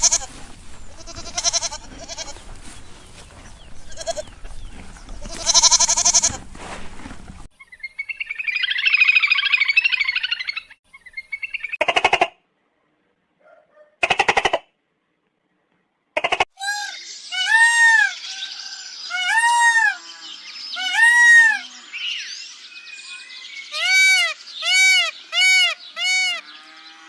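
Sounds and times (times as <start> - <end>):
quavering animal calls: 16.2 - 21.9, 23.7 - 27.0
rising-and-falling animal calls: 16.3 - 21.9, 23.7 - 27.0.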